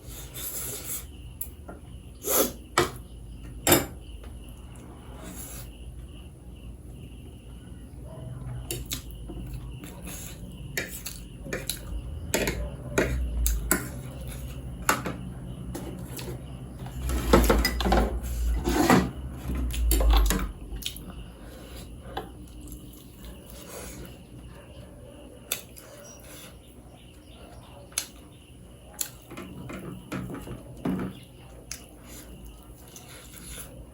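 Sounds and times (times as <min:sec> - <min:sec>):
utensils clinking on a plate: 0:09.8 - 0:20.5.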